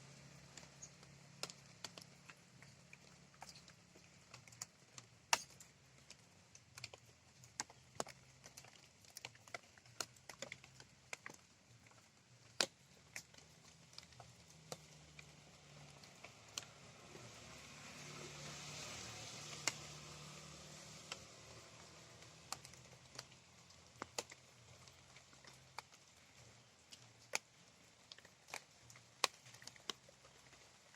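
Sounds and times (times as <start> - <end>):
raindrops dripping and tapping: 0.0 - 30.9
rain hiss: 12.8 - 30.9.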